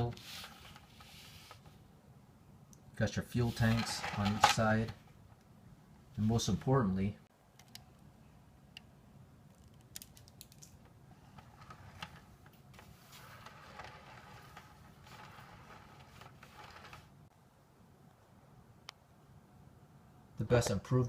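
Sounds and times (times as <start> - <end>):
handling rustle: 3.4 - 5.1.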